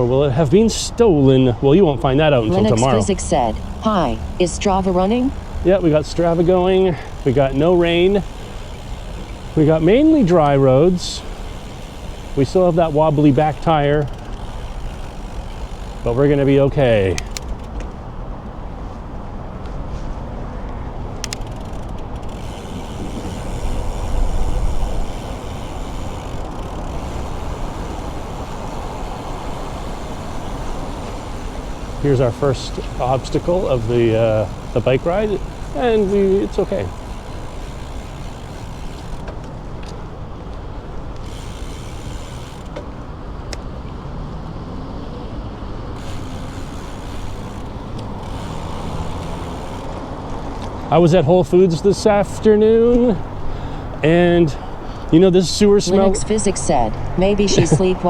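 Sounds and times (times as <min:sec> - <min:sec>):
bicycle road noise: 0:00.0 - 0:58.0
sharp clicks: 0:17.1 - 0:17.9, 0:21.2 - 0:22.4
wind on microphone: 0:22.4 - 0:25.3.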